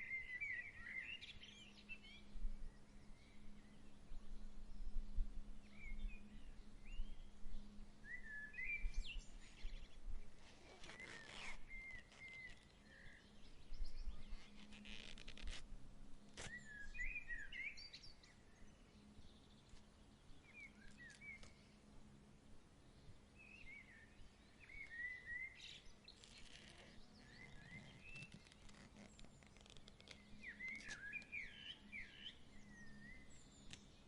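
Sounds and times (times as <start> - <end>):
faint breeze: 0.0 - 34.0
birds chirping: 5.8 - 15.5, 22.8 - 34.0
brief rustles: 10.4 - 12.8, 14.3 - 15.7, 16.3 - 16.7, 26.1 - 31.4.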